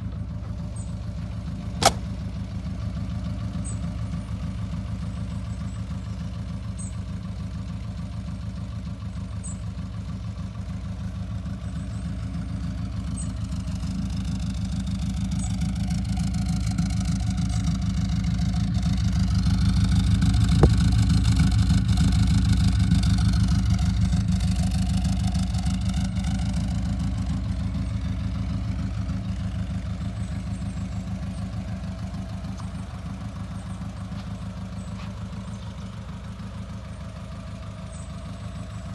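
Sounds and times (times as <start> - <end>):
car engine idling: 0.0 - 38.9
brief click: 1.8 - 2.1.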